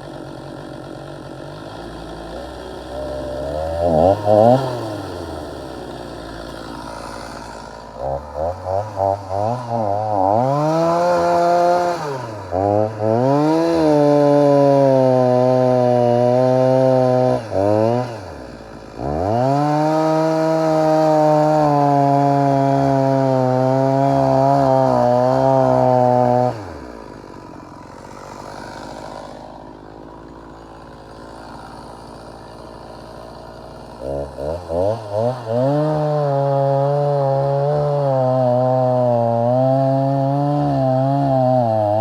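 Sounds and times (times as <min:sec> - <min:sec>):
chainsaw sawing into wood: 0:00.0 - 0:42.0.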